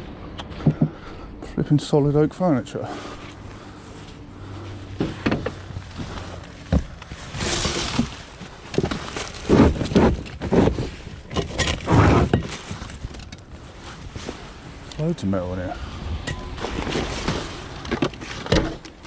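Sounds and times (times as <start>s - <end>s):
junk knocking and thudding: 4.9s - 13.3s.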